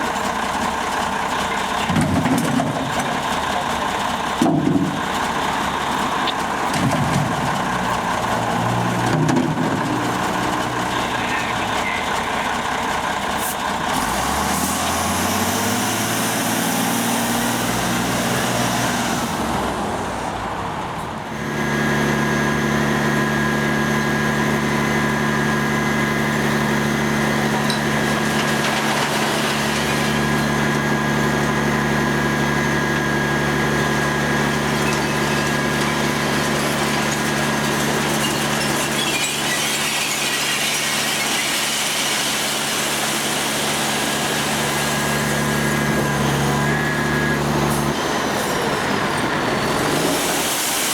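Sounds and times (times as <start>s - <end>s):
truck engine pulling away: 0.0s - 50.9s.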